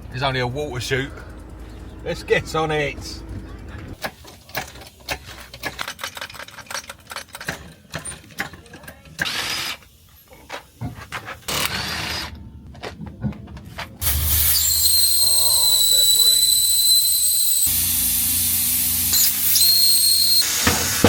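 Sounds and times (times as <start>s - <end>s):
small power tool bursts: 14.0s - 21.0s.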